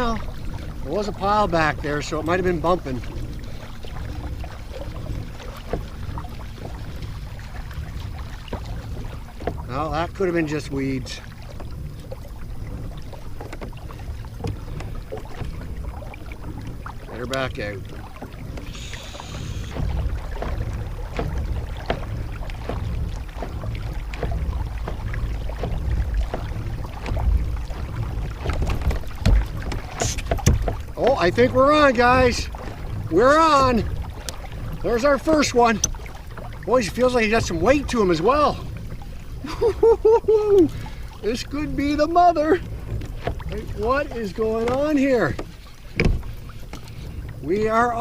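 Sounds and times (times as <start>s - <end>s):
low rumble of kayak: 0.0s - 48.0s
light knocks and ticks: 4.0s - 7.0s, 7.6s - 12.2s, 12.8s - 18.8s, 19.7s - 32.8s, 35.2s - 36.6s, 42.6s - 47.4s.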